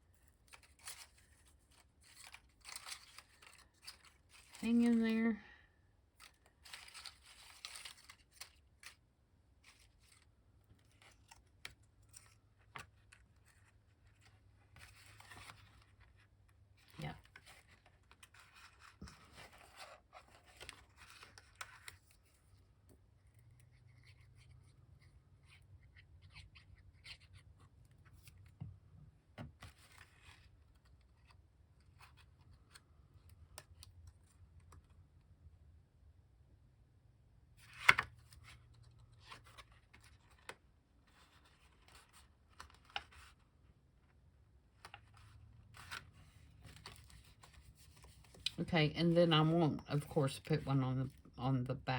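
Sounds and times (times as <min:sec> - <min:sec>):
paper rustling and scraping: 0:00.2 - 0:05.2, 0:06.2 - 0:09.0, 0:09.6 - 0:22.6, 0:44.8 - 0:48.6.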